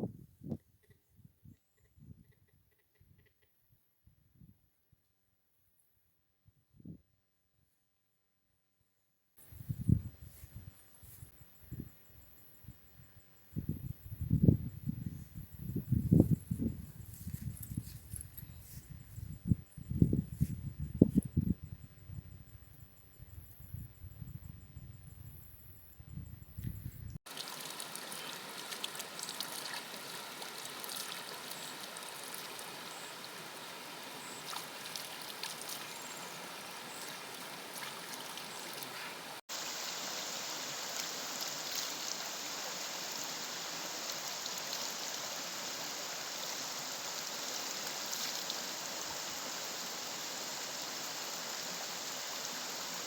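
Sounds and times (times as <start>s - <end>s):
stream water flowing: 27.3s - 53.0s.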